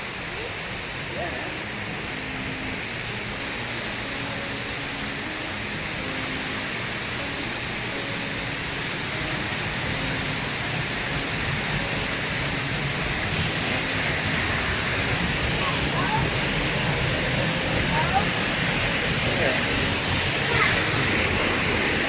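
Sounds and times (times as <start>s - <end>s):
rushing water hiss: 0.0s - 22.0s.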